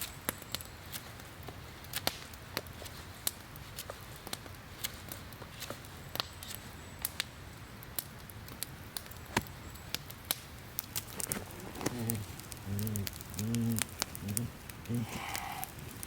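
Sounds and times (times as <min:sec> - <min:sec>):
campfire crackling: 0:00.0 - 0:16.0
short low vocal sounds: 0:11.8 - 0:15.8.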